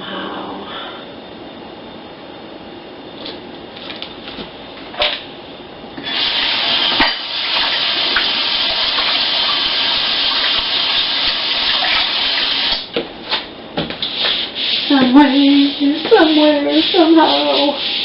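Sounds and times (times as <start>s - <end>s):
tap water running into sink: 6.0s - 12.9s.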